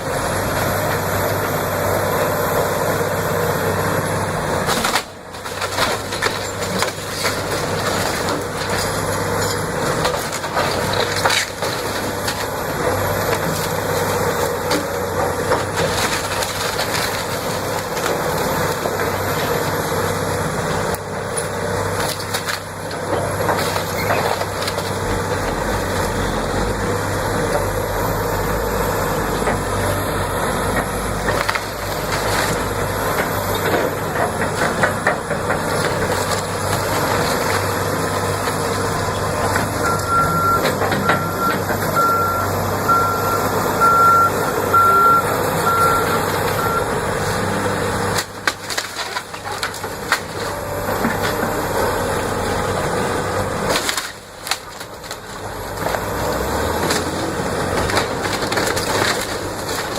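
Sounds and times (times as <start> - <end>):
heavy machinery running: 0.0 - 59.9
reversing alarm beeping: 39.7 - 47.0.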